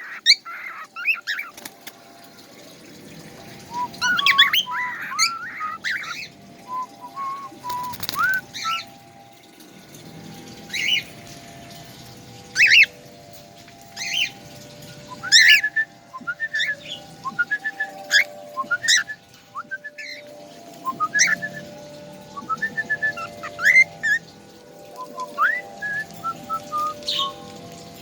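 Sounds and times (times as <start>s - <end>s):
songbird whistled chirps: 3.7s - 8.9s, 15.1s - 24.3s, 24.9s - 27.4s.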